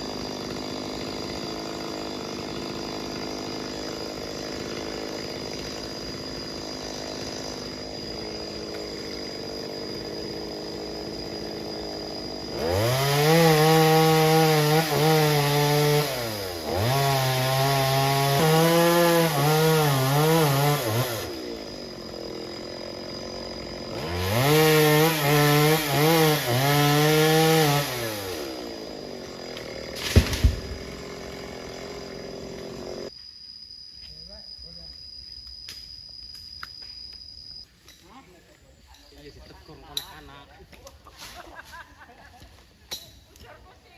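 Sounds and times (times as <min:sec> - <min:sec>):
chainsaw revving: 0:00.0 - 0:33.1.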